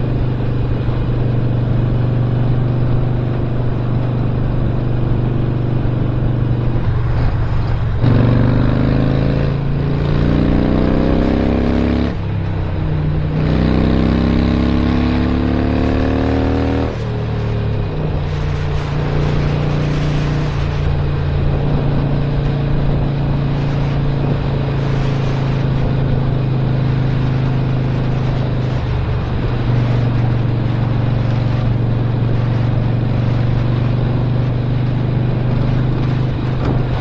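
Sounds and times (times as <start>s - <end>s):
motorcycle accelerating through gears: 0.0s - 37.0s.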